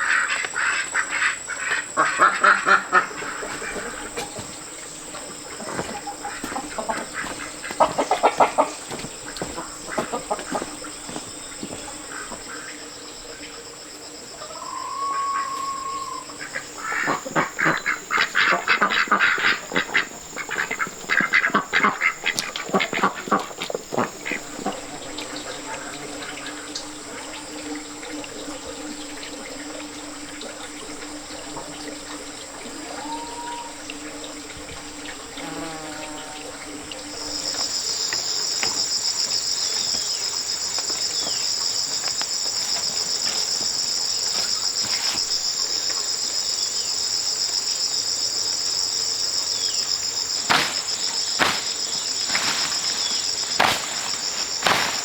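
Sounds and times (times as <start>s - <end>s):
shrill insect chorus: 0.0s - 55.0s
sharp knocks: 50.5s - 52.8s.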